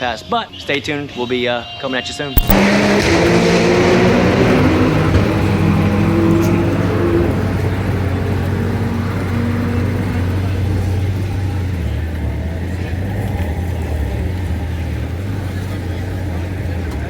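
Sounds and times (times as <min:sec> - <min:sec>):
car engine running: 0:02.4 - 0:17.0
faint voices: 0:04.4 - 0:17.0.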